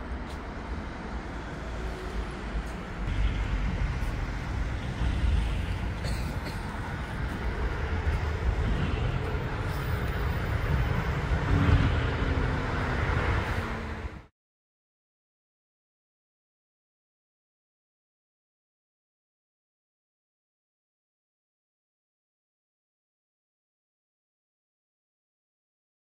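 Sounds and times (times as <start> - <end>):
city street traffic: 0.0 - 14.3.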